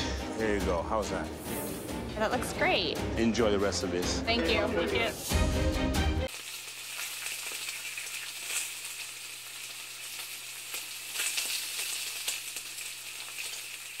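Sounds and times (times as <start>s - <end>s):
food sizzling in a hot pan: 6.3s - 14.0s.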